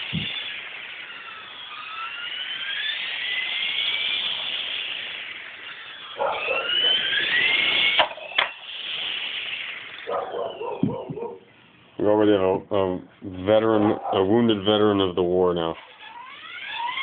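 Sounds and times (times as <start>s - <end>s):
model helicopter rotor whining: 0.0s - 12.5s, 13.5s - 17.0s.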